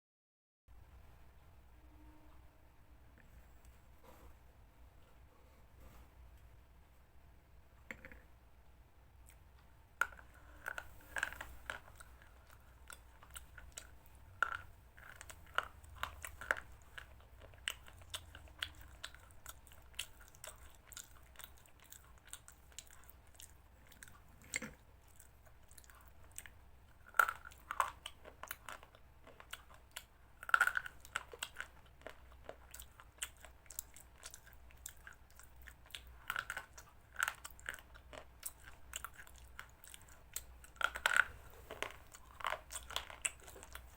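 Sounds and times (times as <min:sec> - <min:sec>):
person chewing crunchy food: 0:09.2 - 0:43.9.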